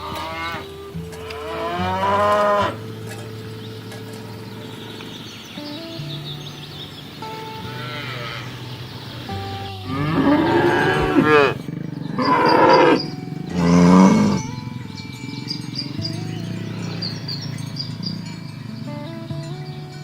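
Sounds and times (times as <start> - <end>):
cattle mooing: 0.0 - 3.2, 7.6 - 8.6, 9.8 - 14.8, 15.4 - 18.9
soft background music: 0.0 - 20.0.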